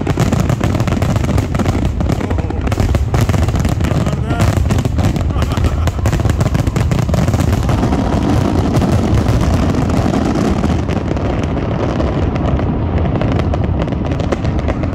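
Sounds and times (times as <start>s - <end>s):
fireworks bangs and crackles: 0.0s - 14.9s.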